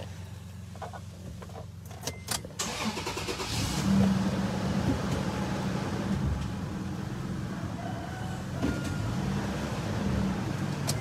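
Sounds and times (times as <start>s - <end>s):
starter motor cranking: 2.6s - 3.8s.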